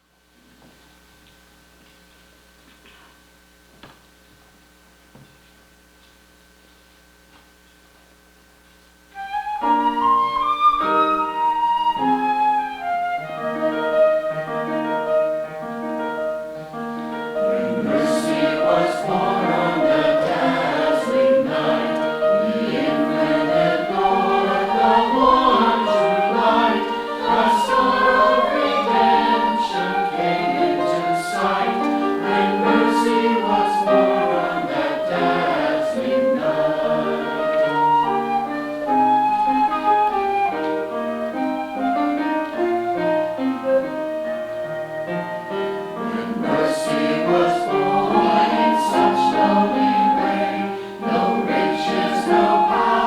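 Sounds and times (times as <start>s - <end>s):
instrumental accompaniment: 9.2s - 53.0s
choir singing: 17.1s - 39.6s, 45.9s - 53.0s.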